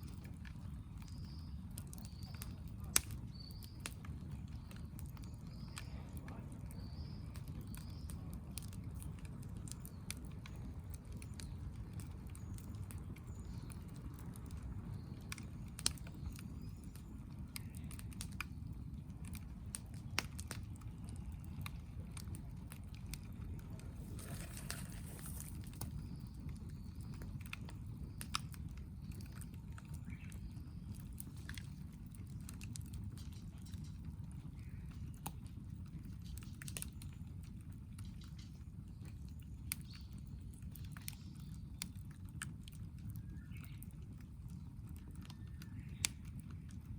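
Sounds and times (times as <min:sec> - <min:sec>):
campfire crackling and popping: 0:00.0 - 0:46.9
fire hissing: 0:23.4 - 0:26.1.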